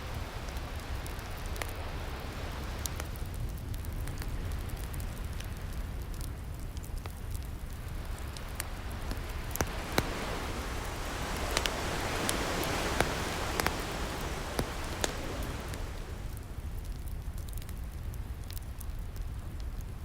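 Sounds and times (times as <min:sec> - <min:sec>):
low surf rumble: 0:00.0 - 0:18.4
fireplace crackling and popping: 0:00.0 - 0:20.0
ocean wave washing in: 0:07.8 - 0:16.6.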